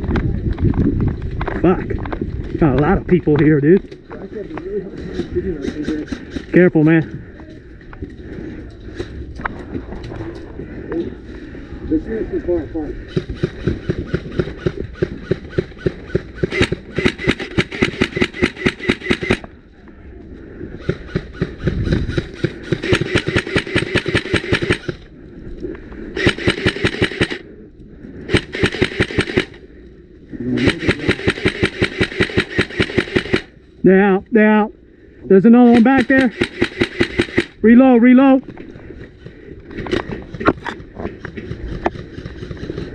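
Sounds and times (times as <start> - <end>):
airsoft rifle firing full-auto: 13.1 - 19.5, 22.1 - 25.0, 26.2 - 27.4, 28.3 - 29.6, 30.6 - 33.5, 35.6 - 37.6.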